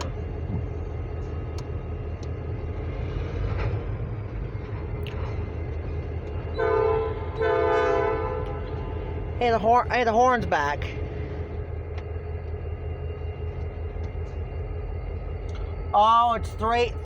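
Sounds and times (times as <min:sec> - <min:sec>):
diesel locomotives rumbling: 0:00.0 - 0:17.0
locomotive air horn: 0:06.5 - 0:08.9.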